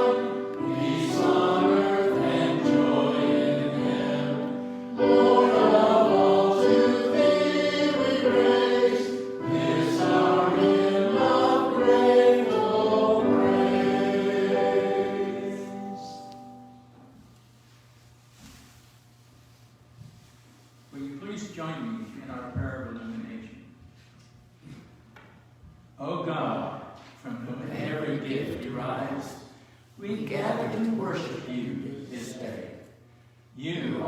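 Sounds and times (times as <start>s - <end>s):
choir singing: 0.0s - 16.8s, 27.6s - 29.5s, 30.5s - 32.8s.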